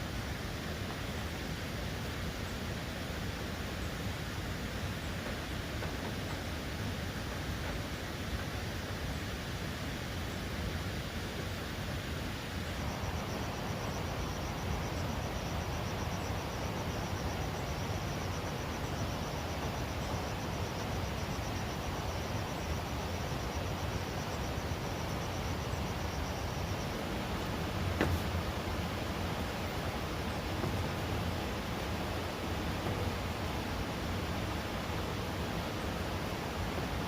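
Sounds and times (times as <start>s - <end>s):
steady outdoor noise: 0.0s - 37.0s.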